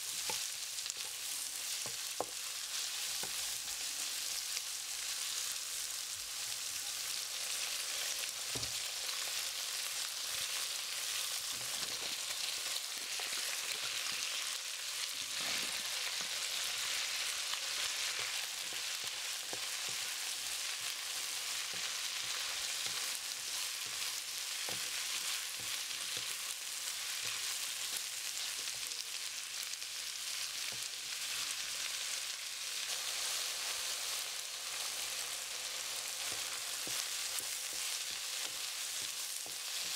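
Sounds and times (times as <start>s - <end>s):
wooden spatula stirring in wok: 0.0s - 5.5s, 32.8s - 39.9s
meat and vegetables sizzling in oil: 0.0s - 39.9s.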